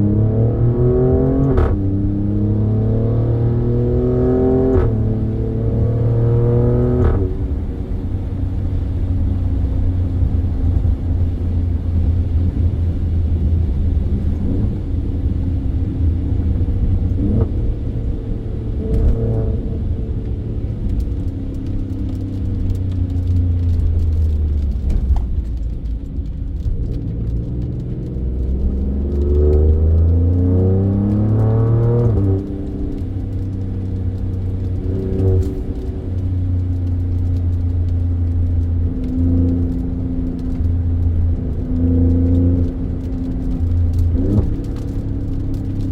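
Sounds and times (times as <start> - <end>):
car engine revving: 0.0 - 45.9.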